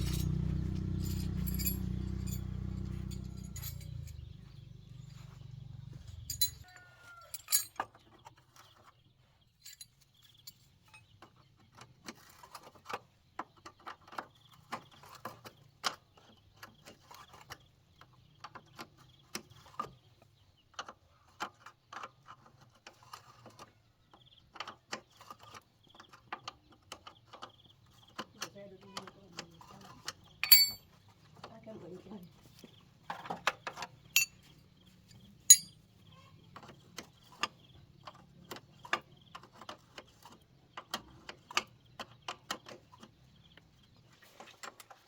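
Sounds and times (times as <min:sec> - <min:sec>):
metallic clinks of hand tools: 0:00.0 - 0:04.3, 0:06.1 - 0:07.8, 0:09.6 - 0:10.0, 0:30.4 - 0:30.8, 0:34.2 - 0:34.4, 0:35.5 - 0:35.8.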